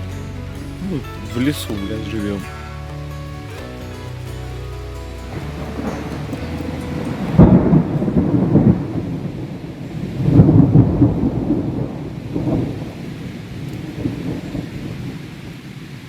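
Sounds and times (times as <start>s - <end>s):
thunder rolling: 5.3s - 15.6s.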